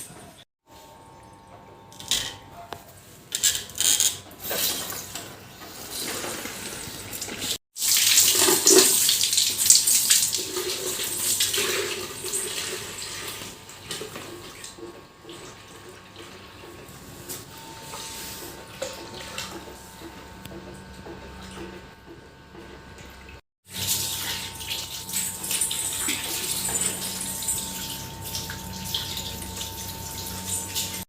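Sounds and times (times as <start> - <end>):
water from hose splashing: 5.8 - 15.5, 23.6 - 31.0.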